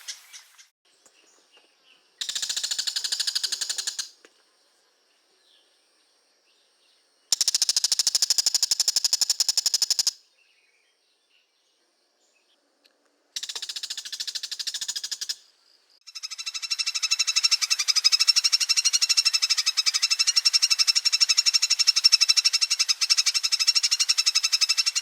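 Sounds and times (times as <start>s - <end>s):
bird high rapid chattering: 2.2s - 4.1s, 7.3s - 10.2s, 13.4s - 15.4s, 16.1s - 25.0s.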